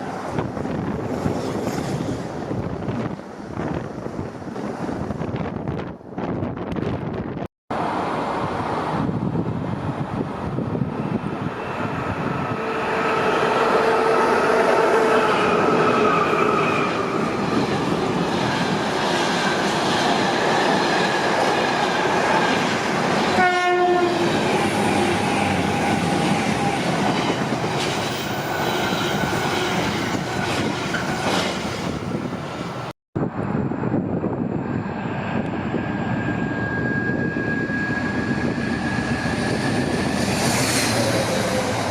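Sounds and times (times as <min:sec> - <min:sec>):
freight train rumbling past: 0:00.0 - 0:41.9
train whine: 0:00.0 - 0:41.9
train horn blast: 0:12.5 - 0:16.4, 0:23.3 - 0:26.7.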